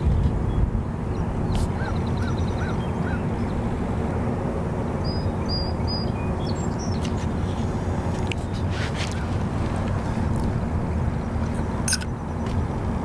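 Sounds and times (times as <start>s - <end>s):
low rumble over water: 0.0s - 13.0s
bird calls: 0.5s - 3.6s, 11.6s - 12.6s.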